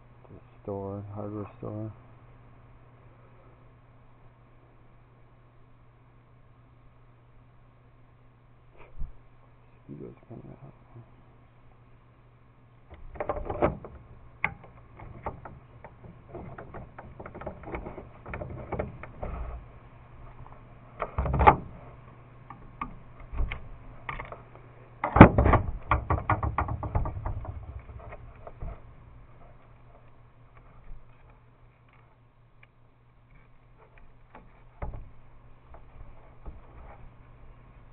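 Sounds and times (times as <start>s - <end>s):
faint steady hum: 0.0s - 37.9s
knock: 25.1s - 27.7s.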